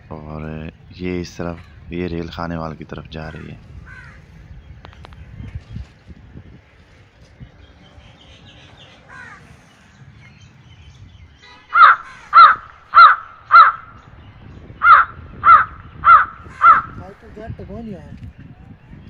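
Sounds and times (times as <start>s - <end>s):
bird calling loudly: 11.1s - 17.1s.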